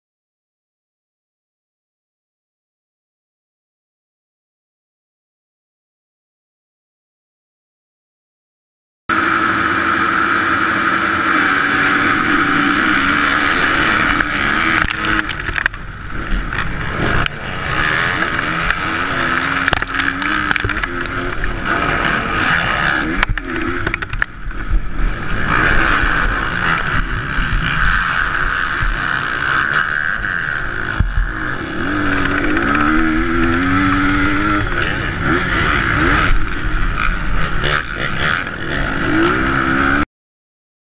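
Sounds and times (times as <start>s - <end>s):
loud rushing noise: 9.1s - 29.5s
motocross bike engine revving: 9.1s - 40.1s.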